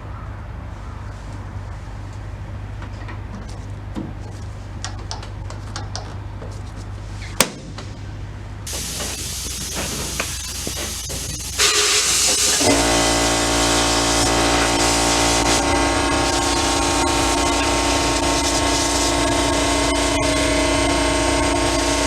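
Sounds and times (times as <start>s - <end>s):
low hum: 7.9s - 22.0s
air spray hiss: 8.7s - 17.4s, 18.2s - 19.3s.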